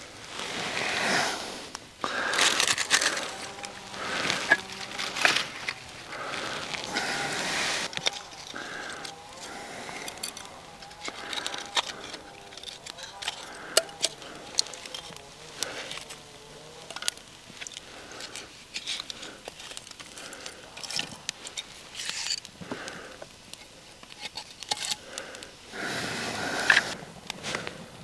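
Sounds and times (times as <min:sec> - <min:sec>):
scraping rush: 0:00.0 - 0:18.5, 0:25.7 - 0:28.0
hands handling kindling: 0:00.0 - 0:28.0.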